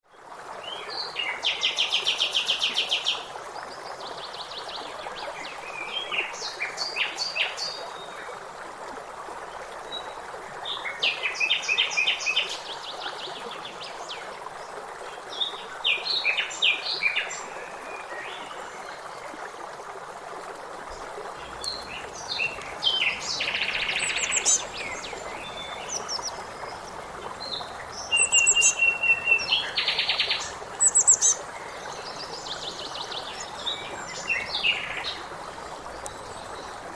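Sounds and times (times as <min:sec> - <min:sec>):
songbirds singing trills: 0:21.4 - 0:36.9.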